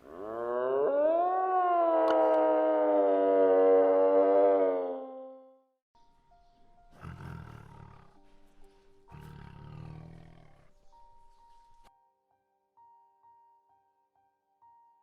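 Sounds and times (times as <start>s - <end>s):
large animal roaring: 0.0s - 1.2s, 6.9s - 11.4s
faint background music: 6.0s - 15.0s.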